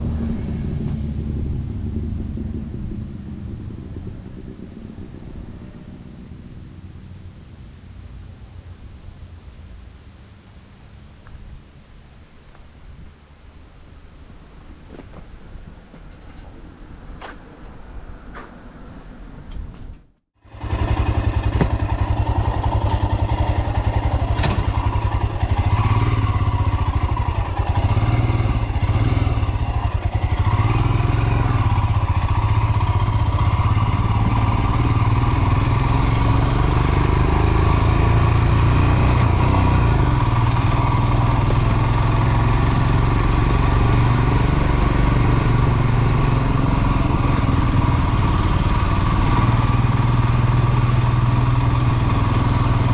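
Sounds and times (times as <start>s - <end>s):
motorcycle engine revving: 0.0s - 7.2s, 20.4s - 52.9s.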